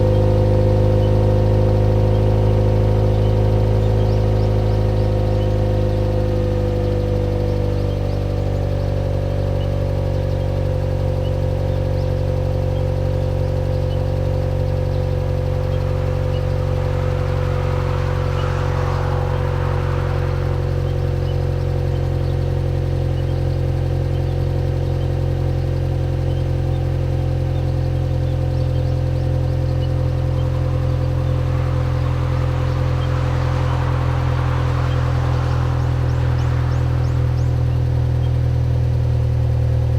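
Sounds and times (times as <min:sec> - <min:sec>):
car engine idling: 0:00.0 - 0:39.9
hiss: 0:15.2 - 0:22.5, 0:29.2 - 0:38.5.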